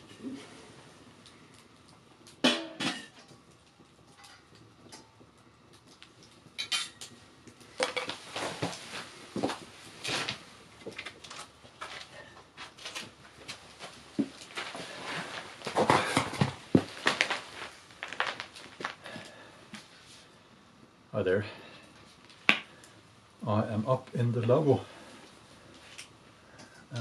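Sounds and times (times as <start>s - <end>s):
objects knocking and clattering: 2.2s - 5.1s, 5.9s - 8.8s, 14.2s - 19.0s.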